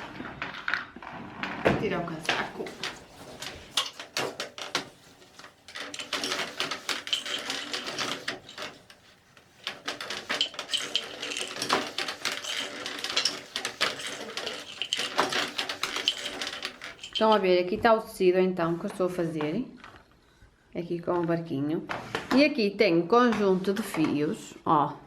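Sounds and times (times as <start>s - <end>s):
clattering of objects being handled: 0.0s - 18.0s.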